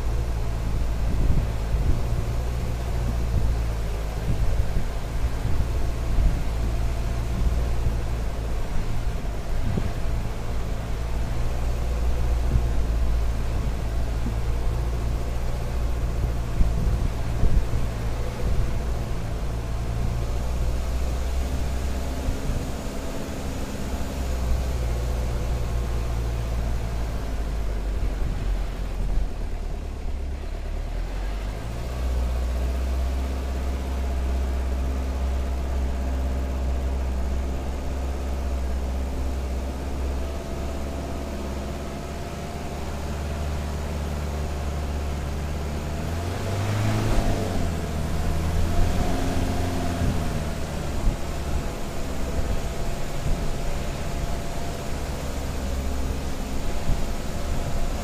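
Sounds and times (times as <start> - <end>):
car engine running under load: 0.0 - 58.0
engine revving: 30.9 - 58.0.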